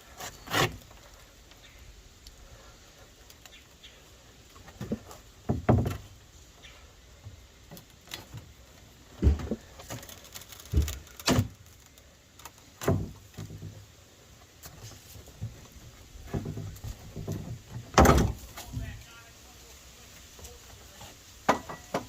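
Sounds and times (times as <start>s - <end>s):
knocks on wooden deck boards: 4.8s - 6.0s.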